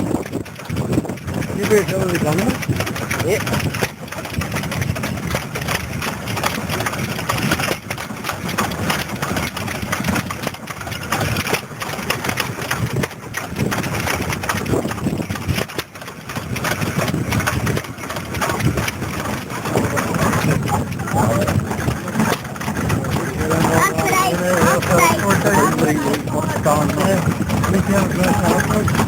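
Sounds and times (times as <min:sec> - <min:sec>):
stationary engines running: 0:18.6 - 0:29.0.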